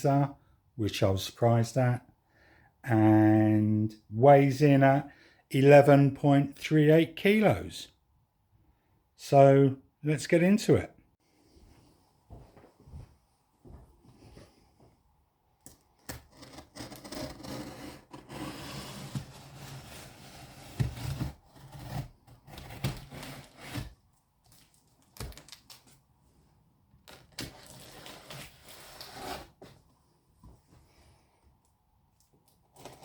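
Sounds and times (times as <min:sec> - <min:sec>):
cardboard scraping and rustling: 0:16.2 - 0:24.0.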